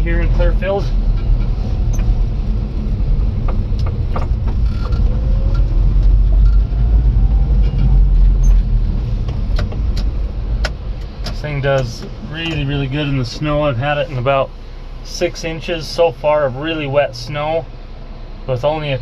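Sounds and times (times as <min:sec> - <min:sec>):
small truck engine rumble: 0:00.0 - 0:19.0
tyres on road: 0:00.0 - 0:19.0
light clicks and knocks: 0:09.2 - 0:12.7.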